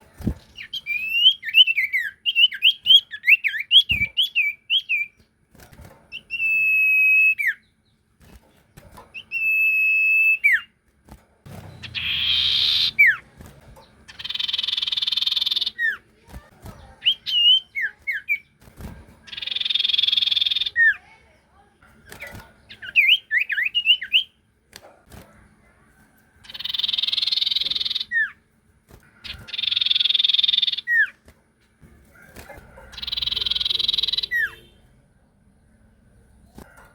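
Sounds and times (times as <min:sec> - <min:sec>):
songbird singing: 0:00.0 - 0:05.4, 0:11.6 - 0:18.6, 0:19.2 - 0:24.4, 0:26.4 - 0:28.4, 0:29.1 - 0:31.2, 0:32.2 - 0:36.6
harsh rasping bird calls: 0:11.8 - 0:13.2, 0:14.1 - 0:16.0, 0:19.3 - 0:21.1, 0:26.4 - 0:28.4, 0:29.0 - 0:31.2, 0:32.1 - 0:34.9.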